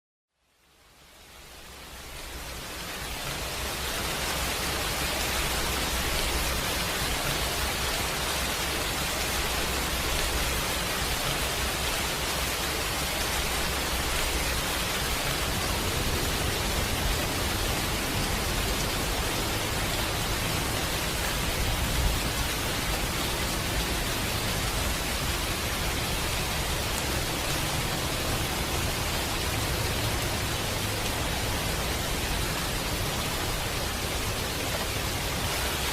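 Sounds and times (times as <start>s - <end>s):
steady dense rain: 0.3s - 35.9s.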